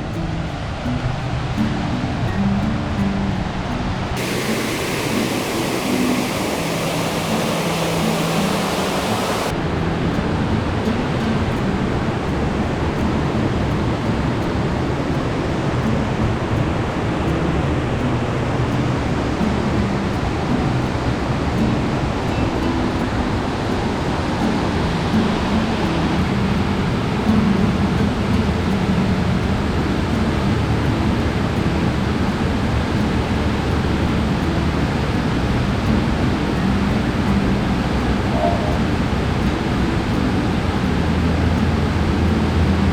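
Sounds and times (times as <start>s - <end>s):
waterfall roaring over rock: 4.0s - 42.9s
waterfall rushing: 4.2s - 9.6s.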